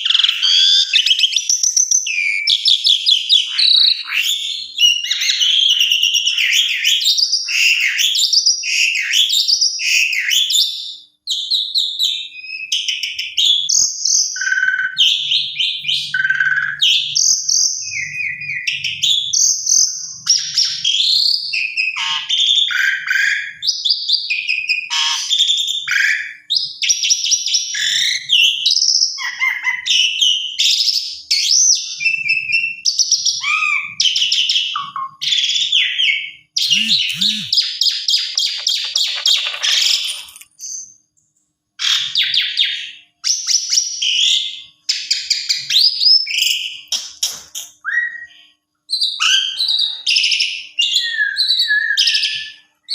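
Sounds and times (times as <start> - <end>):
starling singing varied whistles: 36.6 - 39.6.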